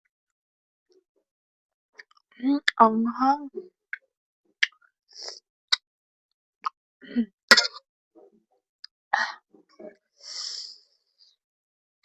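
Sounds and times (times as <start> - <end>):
person coughing: 7.1 - 7.8.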